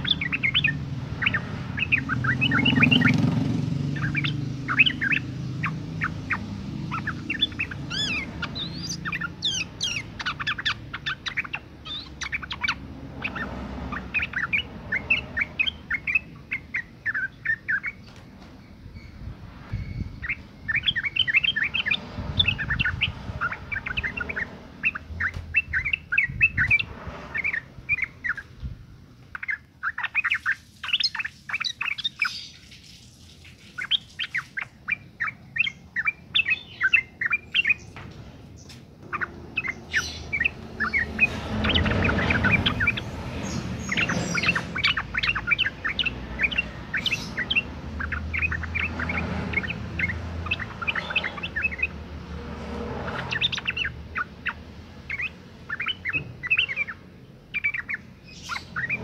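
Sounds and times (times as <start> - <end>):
bird chirping: 0.0 - 59.0.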